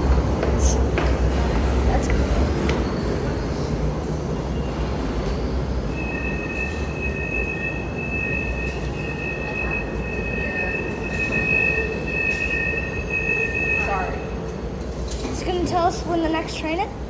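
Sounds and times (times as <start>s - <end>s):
subway train rumble: 0.0s - 17.0s
steel wheels squealing: 4.4s - 14.5s.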